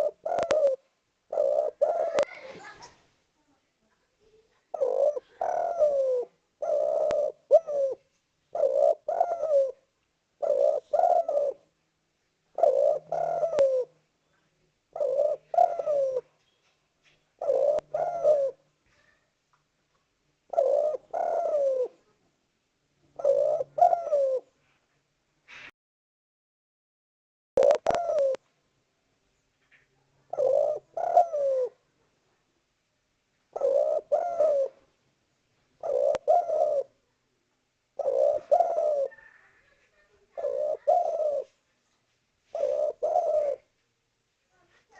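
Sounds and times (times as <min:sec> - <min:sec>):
dove cooing: 0:00.0 - 0:02.9, 0:04.7 - 0:11.7, 0:12.5 - 0:14.0, 0:14.9 - 0:16.4, 0:17.4 - 0:19.0, 0:20.5 - 0:22.1, 0:23.1 - 0:24.6, 0:27.6 - 0:28.4, 0:29.7 - 0:31.8, 0:33.5 - 0:34.9, 0:35.8 - 0:37.0, 0:38.0 - 0:41.6, 0:42.5 - 0:43.7.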